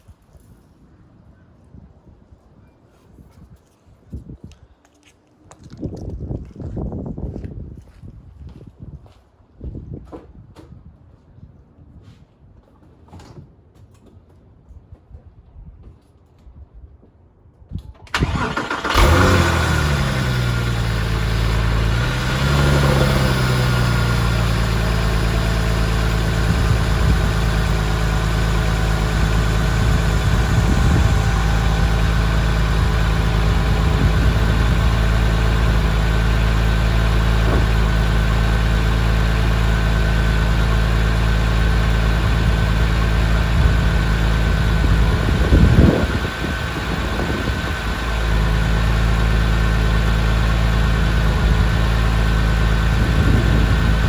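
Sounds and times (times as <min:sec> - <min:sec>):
car engine idling: 0:18.1 - 0:54.0.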